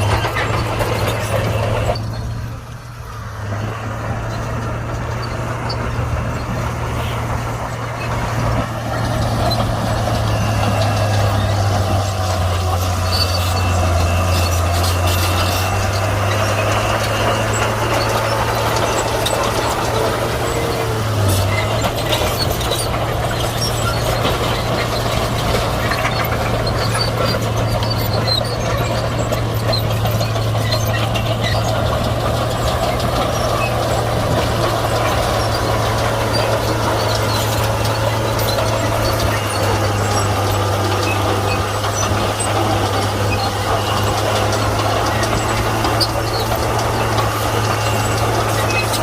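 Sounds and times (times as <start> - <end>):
bulldozer diesel engine running: 0.0 - 49.0.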